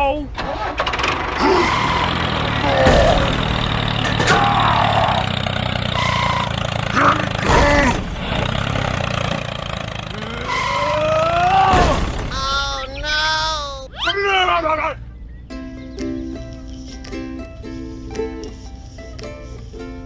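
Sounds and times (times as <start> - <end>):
engine humming: 0.0 - 20.0
squeaky voice-like cries: 1.4 - 3.3, 10.2 - 11.8.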